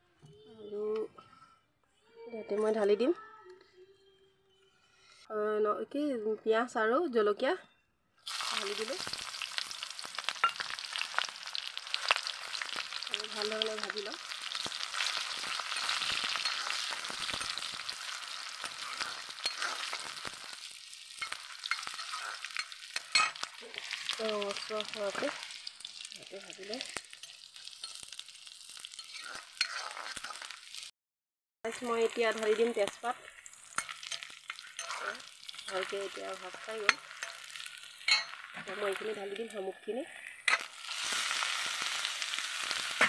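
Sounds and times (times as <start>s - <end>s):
onions sizzling in oil: 8.2s - 30.9s, 31.7s - 43.0s
steel spoon scraping pan: 11.9s - 25.8s, 26.5s - 30.6s, 33.4s - 39.0s.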